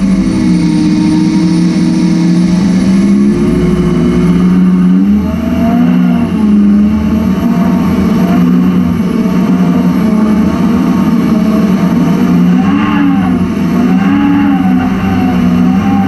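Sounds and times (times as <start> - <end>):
jet boat engine at high revs: 0.0 - 16.0.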